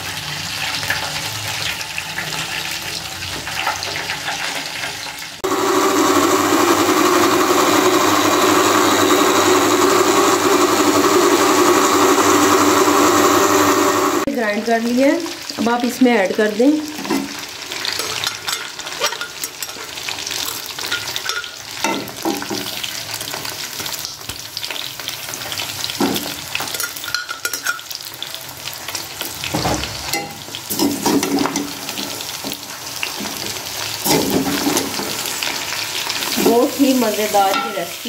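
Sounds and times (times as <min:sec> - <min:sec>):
food sizzling in hot oil: 0:00.0 - 0:38.0
metal spoon scraping a pan: 0:17.2 - 0:22.2, 0:26.6 - 0:28.0.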